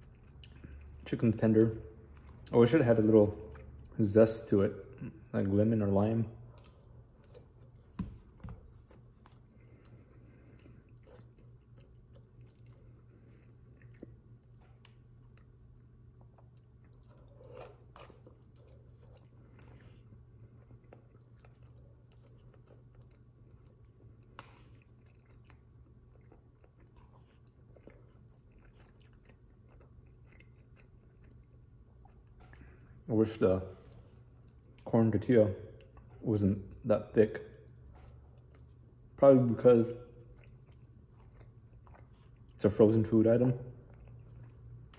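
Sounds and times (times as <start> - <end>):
close-up chewing: 0.0 - 1.2, 6.3 - 33.1, 37.6 - 44.9
steady low hum: 0.0 - 44.9.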